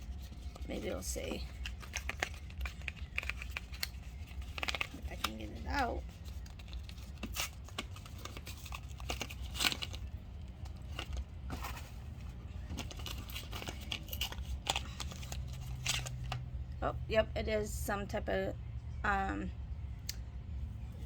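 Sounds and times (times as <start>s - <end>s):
paper and plastic crinkling: 0.0s - 16.4s.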